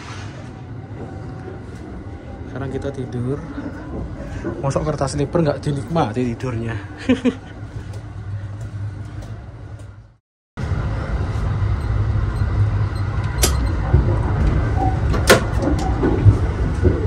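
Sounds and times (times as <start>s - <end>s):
train running low rumble: 0.0s - 17.0s.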